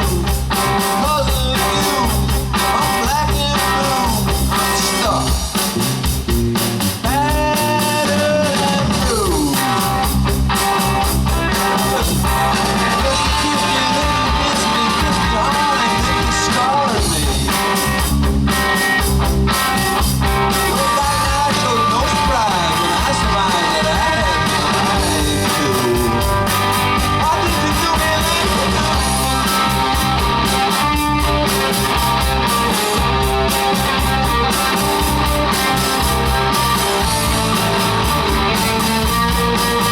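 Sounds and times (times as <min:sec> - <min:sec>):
person singing: 0:00.0 - 0:05.5, 0:07.0 - 0:10.0, 0:11.4 - 0:17.6, 0:20.5 - 0:26.5, 0:27.1 - 0:30.0
electric guitar: 0:00.0 - 0:39.9
rock and roll band playing: 0:00.0 - 0:39.9.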